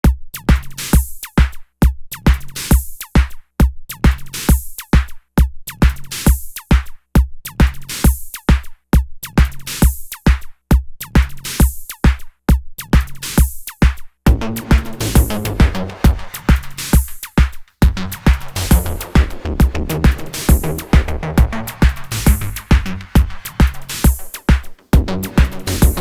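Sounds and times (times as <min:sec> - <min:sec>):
electronic music with drum machine: 0:12.8 - 0:26.0.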